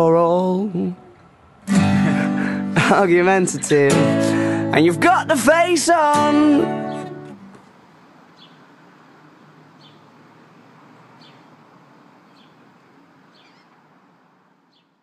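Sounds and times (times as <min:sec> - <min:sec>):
faint outdoor background noise: 0:00.0 - 0:15.0
small bird chirping: 0:08.3 - 0:08.7, 0:09.7 - 0:10.2, 0:11.1 - 0:11.6, 0:12.2 - 0:13.9, 0:14.7 - 0:15.0.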